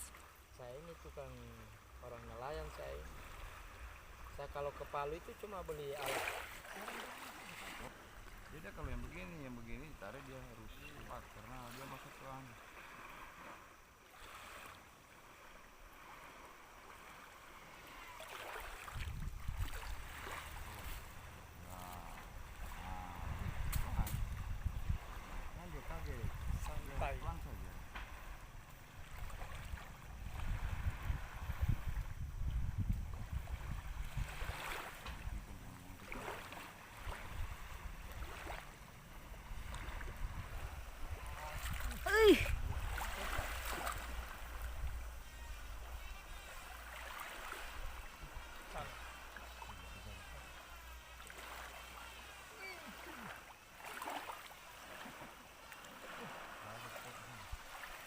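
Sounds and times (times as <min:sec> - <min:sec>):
faint water: 0:00.0 - 0:58.0
wind noise: 0:18.9 - 0:21.0, 0:22.4 - 0:35.8, 0:39.4 - 0:46.1.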